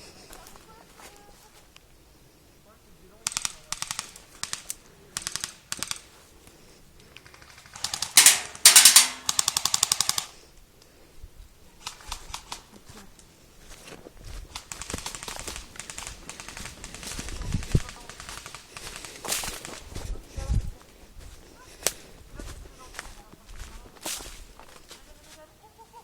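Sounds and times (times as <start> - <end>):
airsoft guns full-auto bursts: 3.2 - 6.1, 7.2 - 10.3, 14.6 - 17.2, 17.9 - 19.8.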